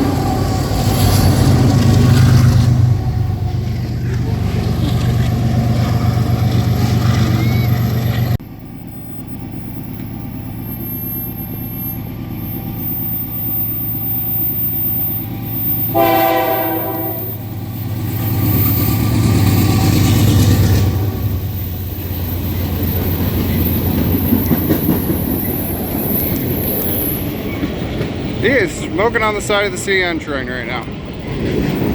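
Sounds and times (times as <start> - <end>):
diesel locomotive engine drone: 0.0 - 31.9
rail cars clattering: 0.0 - 31.9
train horn: 15.9 - 17.5.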